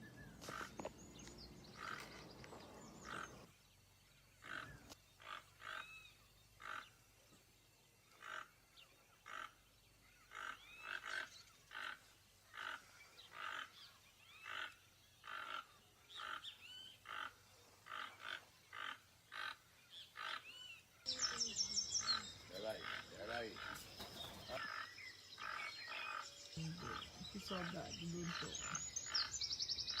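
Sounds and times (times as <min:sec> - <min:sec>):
toucan calling: 0:10.2 - 0:30.0.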